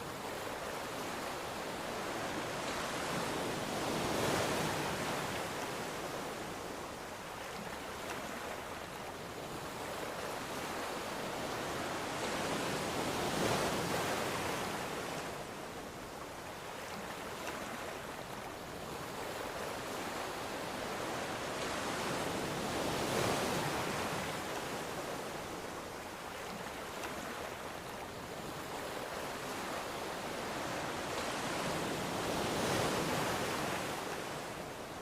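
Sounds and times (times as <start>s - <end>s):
ocean waves breaking on shore: 0.0s - 35.0s.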